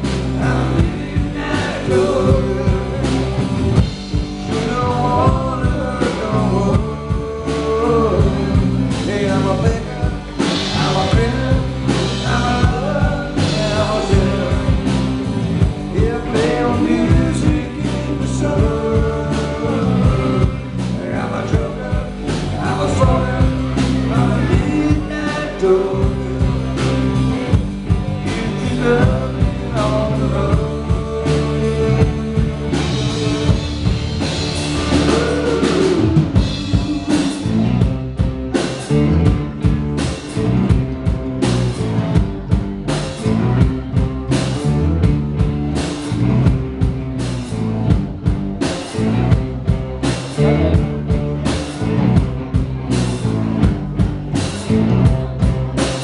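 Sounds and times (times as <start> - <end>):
drum kit beat: 0.0 - 56.0
electric guitar: 0.0 - 56.0.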